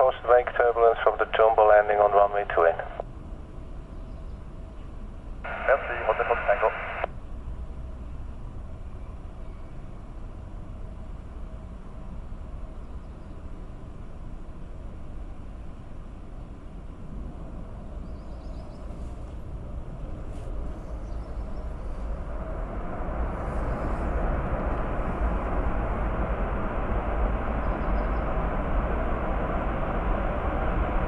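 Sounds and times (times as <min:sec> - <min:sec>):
jet engines roaring: 0:00.0 - 0:03.0, 0:05.5 - 0:07.1, 0:19.0 - 0:31.0.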